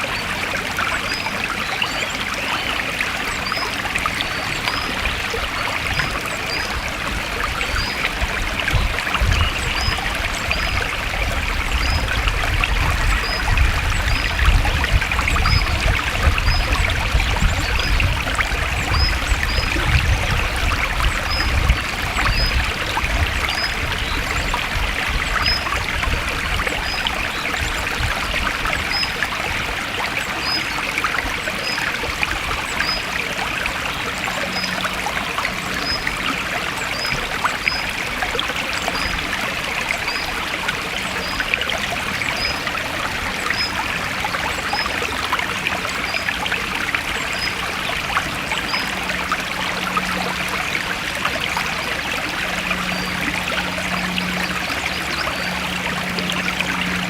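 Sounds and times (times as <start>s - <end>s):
stream flowing and trickling: 0.0s - 57.0s.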